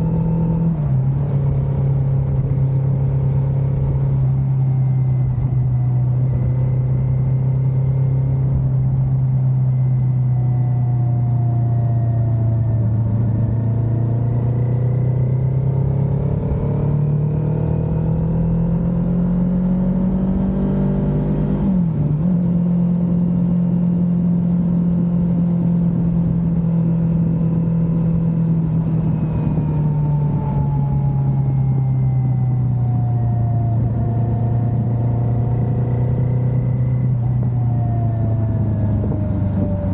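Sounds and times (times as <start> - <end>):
motorcycle engine cruising: 0.0 - 39.9
wind rush: 37.3 - 39.9.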